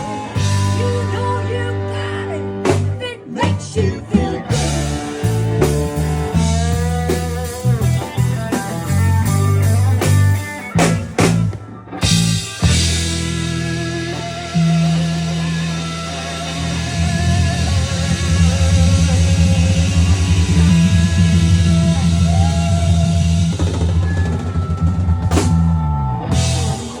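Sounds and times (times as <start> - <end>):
rock music with drums: 0.0 - 27.0.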